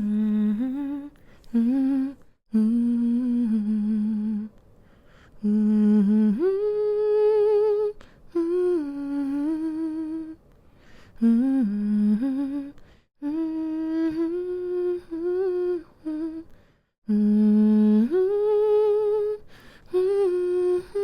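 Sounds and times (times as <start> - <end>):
woman humming a lullaby: 0.0 - 4.5, 11.2 - 16.5.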